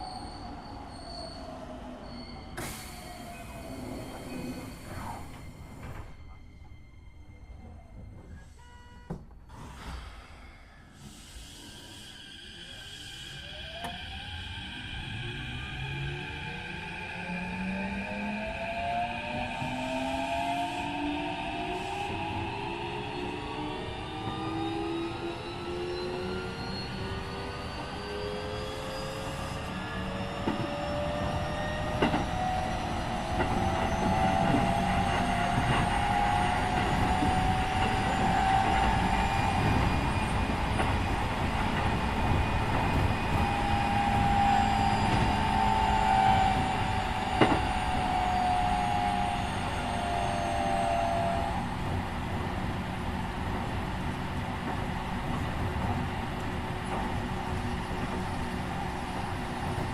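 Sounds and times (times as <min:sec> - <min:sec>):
wheels rumbling on rails: 0:30.0 - 0:59.9
rail joint clicks: 0:31.9 - 0:45.5, 0:46.2 - 0:48.0, 0:52.2 - 0:59.9.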